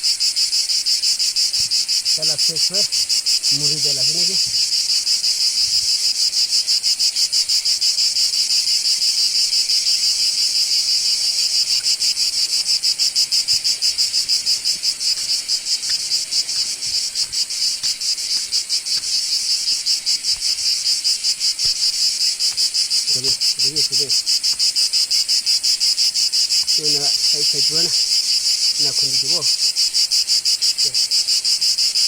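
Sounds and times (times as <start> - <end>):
insects buzzing: 0.0 - 32.0.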